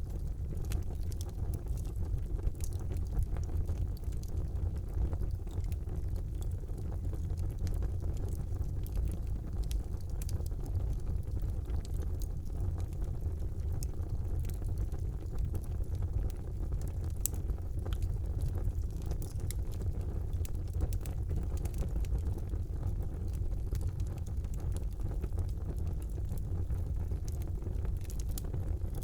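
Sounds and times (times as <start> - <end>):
fire crackling and popping: 0.0 - 29.0
fire flames rumbling: 0.0 - 29.0.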